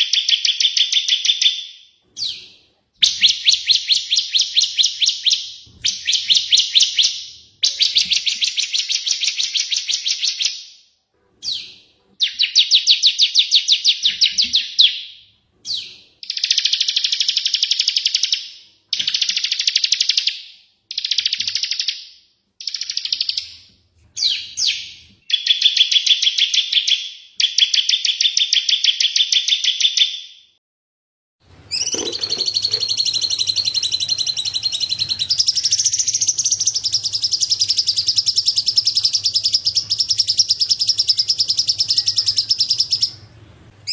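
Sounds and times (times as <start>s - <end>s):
whistled bird call: 31.7s - 43.2s.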